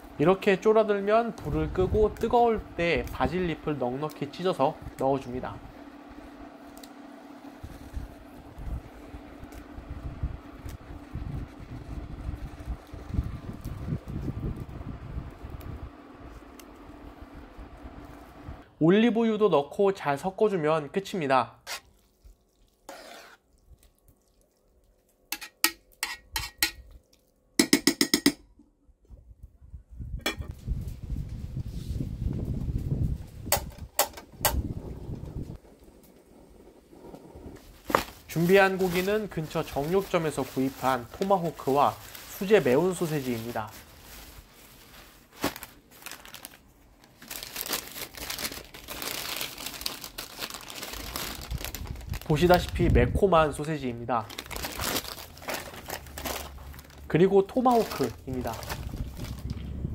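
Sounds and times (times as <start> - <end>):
wrapping crinkling and rustling: 10.5 - 14.7, 37.5 - 59.8.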